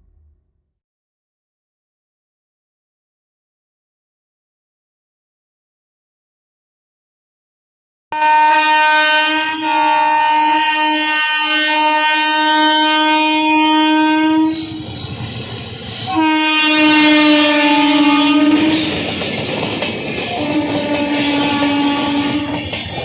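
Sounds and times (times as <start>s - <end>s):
locomotive horn blasts: 8.1s - 14.8s, 16.1s - 18.9s, 20.3s - 22.6s
train wheels rumbling and clattering: 14.4s - 23.0s.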